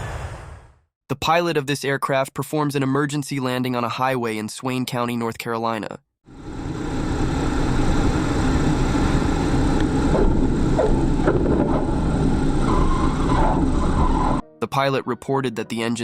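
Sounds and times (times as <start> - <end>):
wind or road rushing: 0.0 - 0.8
deep rumble: 6.4 - 14.4
vehicle engine running: 6.4 - 14.4
short squeaky pitch glides: 12.6 - 14.4.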